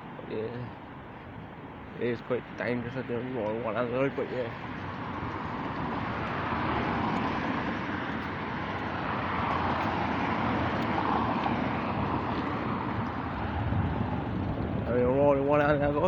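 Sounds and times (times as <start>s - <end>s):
road rumble: 0.0s - 16.0s
wind on microphone: 4.6s - 16.0s.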